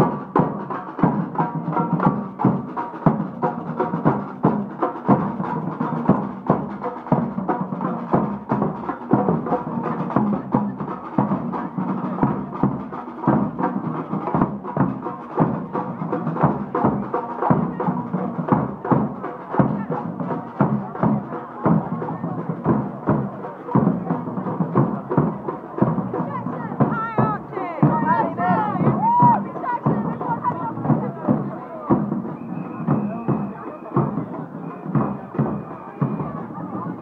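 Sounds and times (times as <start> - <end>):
marching band drums: 0.0 - 37.0
marching band playing: 0.0 - 37.0.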